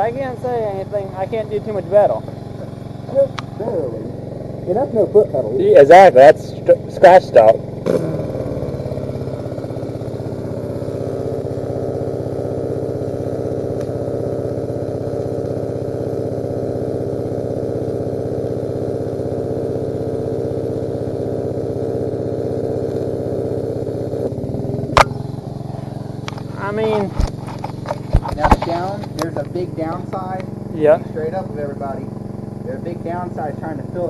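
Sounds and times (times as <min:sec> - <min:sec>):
engine-drive welder humming: 0:00.0 - 0:34.0.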